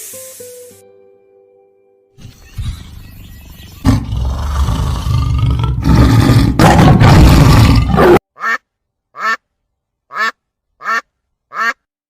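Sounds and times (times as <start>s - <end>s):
rough deep animal-like sound: 3.8s - 8.2s
duck quacking: 8.4s - 9.4s, 10.1s - 11.9s.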